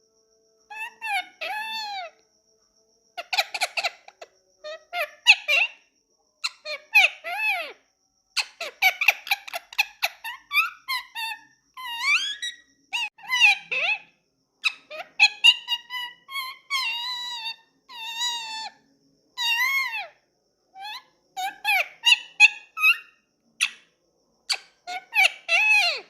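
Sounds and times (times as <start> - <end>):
parakeet chattering: 0.7 - 2.1, 3.2 - 5.8, 6.4 - 7.8, 8.4 - 14.0, 14.6 - 18.8, 19.4 - 20.1, 20.8 - 23.8, 24.5 - 26.0.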